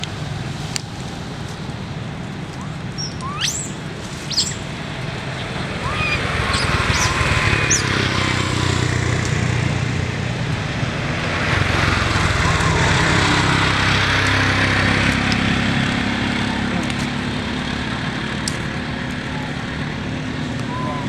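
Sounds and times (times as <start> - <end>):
motor vehicle engine running: 0.0 - 21.0
bird chirps: 2.6 - 4.7, 5.3 - 8.1, 20.6 - 21.0.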